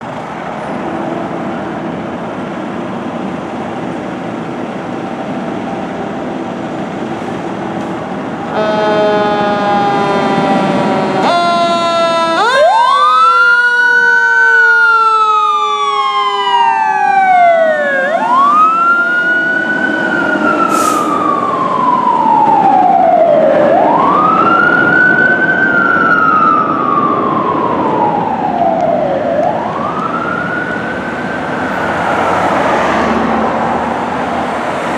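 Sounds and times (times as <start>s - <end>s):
engine and road noise: 0.0s - 34.9s
fire engine siren wailing: 1.2s - 34.9s
second siren falling in pitch: 8.5s - 31.5s.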